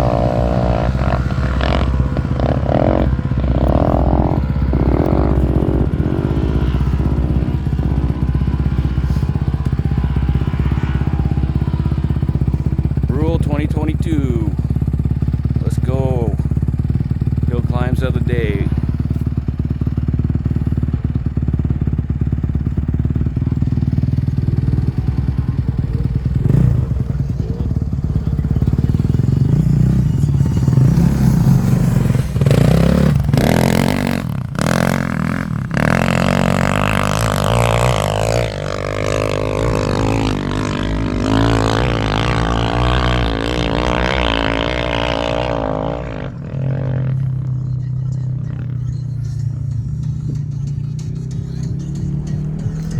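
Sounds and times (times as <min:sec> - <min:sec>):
loud sharp engine blasts: 0:00.0 - 0:19.6
dirt bike engine revving: 0:00.0 - 0:52.9.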